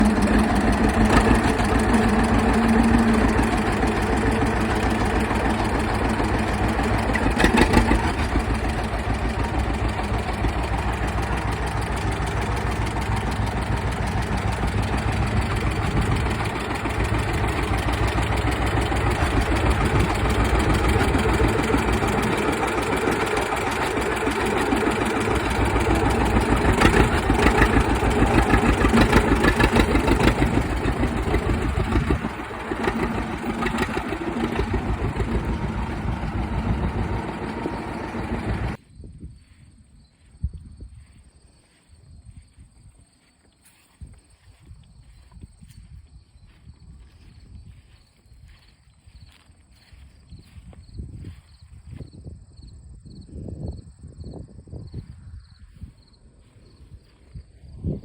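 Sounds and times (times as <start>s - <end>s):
tractor engine running: 0.0s - 38.8s.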